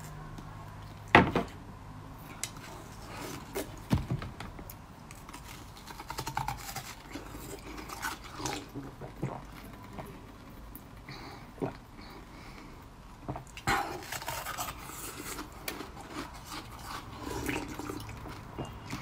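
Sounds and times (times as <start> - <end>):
biting and chewing food: 2.2 - 11.0, 13.2 - 19.0.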